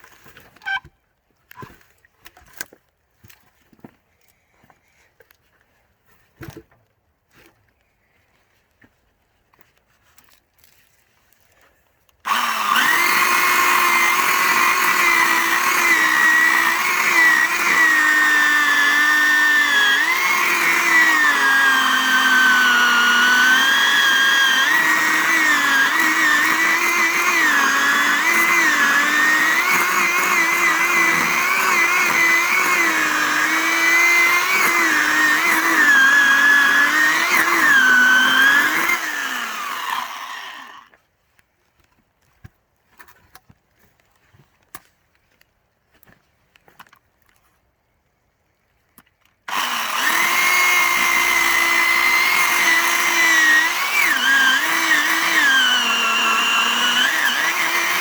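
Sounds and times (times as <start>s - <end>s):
electric chainsaw cutting log: 12.3s - 40.9s, 49.5s - 58.0s.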